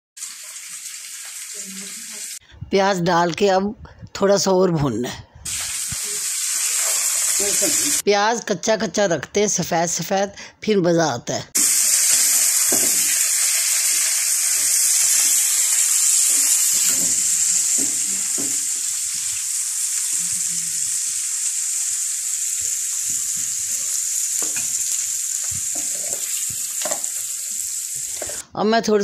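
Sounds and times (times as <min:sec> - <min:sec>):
vegetables sizzling in a frying pan: 0:00.2 - 0:02.4, 0:05.4 - 0:08.0, 0:11.6 - 0:28.4
spoon stirring and scraping pan: 0:05.5 - 0:07.5, 0:14.4 - 0:19.4, 0:22.6 - 0:28.4.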